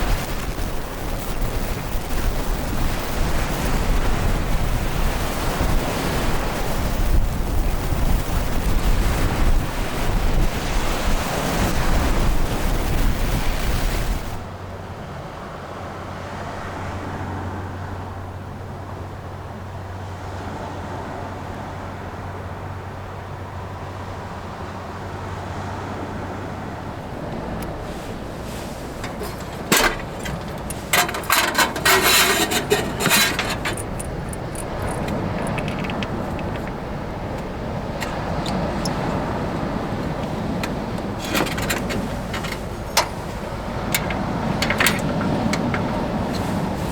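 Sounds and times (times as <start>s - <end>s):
strong wind buffeting microphone: 0.0s - 14.5s, 26.5s - 46.9s
constant low hum: 27.0s - 46.9s
hard objects rattling and clattering: 28.4s - 46.9s.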